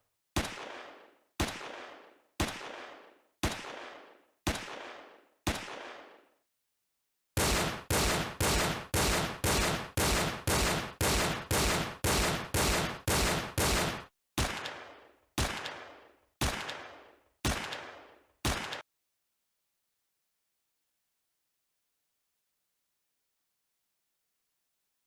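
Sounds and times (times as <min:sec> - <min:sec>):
gunshots: 0:00.4 - 0:06.3, 0:07.4 - 0:18.8.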